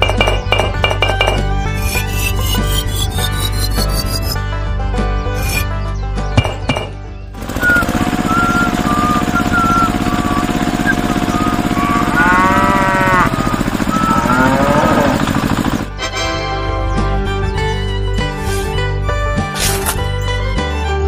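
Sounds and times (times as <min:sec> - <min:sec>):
toy concrete mixer motor running: 0:07.4 - 0:15.9.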